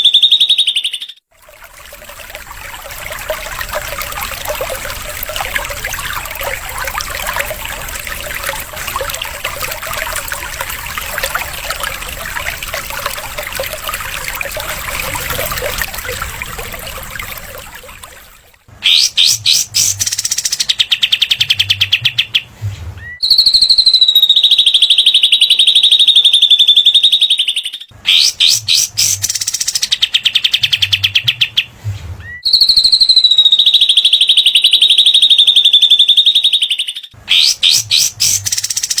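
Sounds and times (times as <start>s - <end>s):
trickling water: 1.3s - 23.2s, 27.9s - 32.6s, 37.1s - 39.0s.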